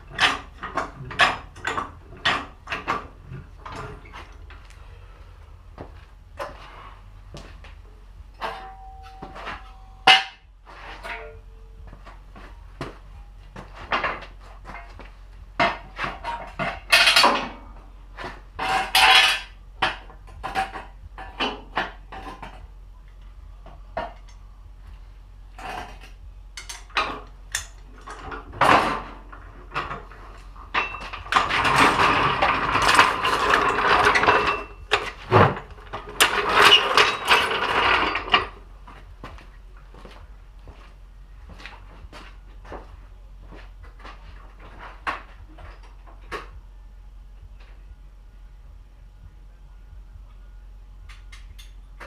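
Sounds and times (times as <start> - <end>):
tools and metal parts clanking: 0.0 - 5.1, 5.8 - 22.8, 23.6 - 24.5, 25.5 - 39.1, 43.5 - 46.6, 51.1 - 52.0.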